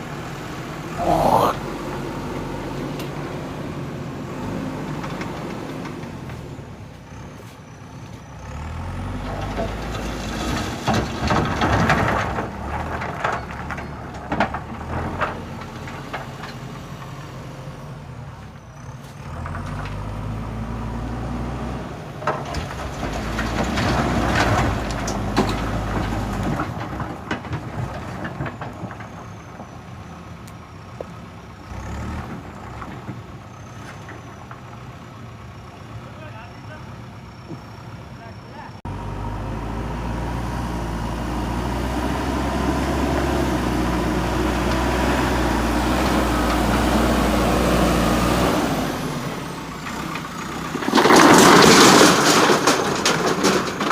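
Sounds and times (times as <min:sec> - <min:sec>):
diesel engine working under load: 0:00.0 - 0:53.9
clattering noise: 0:09.2 - 0:17.2, 0:22.2 - 0:29.7, 0:49.8 - 0:53.9.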